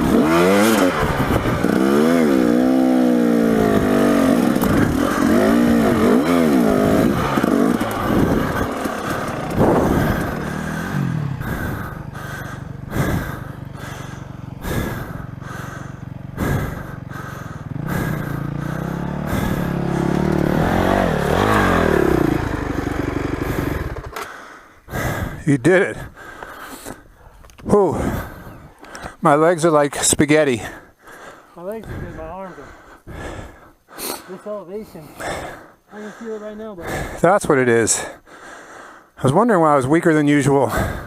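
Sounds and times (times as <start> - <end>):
dirt bike engine revving: 0.0 - 26.4, 27.6 - 29.7.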